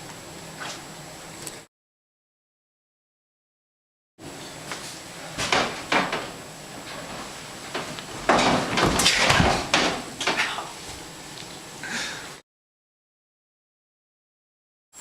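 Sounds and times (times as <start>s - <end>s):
clattering and rustling: 4.4s - 10.6s
sharp knocks: 5.4s - 6.4s, 7.0s - 10.4s.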